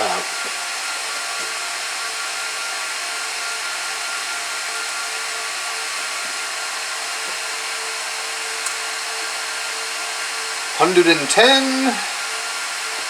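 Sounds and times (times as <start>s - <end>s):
server cooling fans whining: 8.2s - 13.0s.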